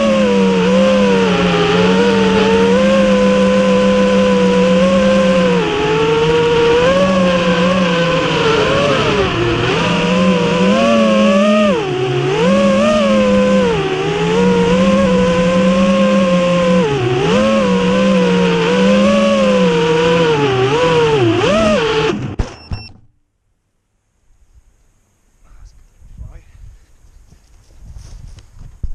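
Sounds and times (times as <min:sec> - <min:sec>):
drone motors and propellers whining: 0:00.0 - 0:23.1.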